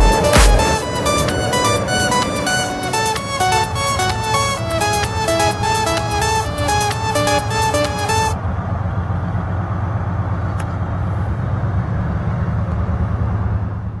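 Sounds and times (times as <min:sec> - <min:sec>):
music: 0:00.0 - 0:08.4.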